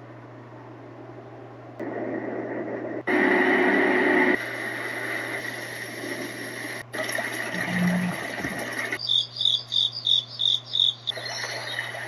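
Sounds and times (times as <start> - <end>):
white noise machine: 0.0 - 12.0
recorded crickets chirping: 9.0 - 12.0.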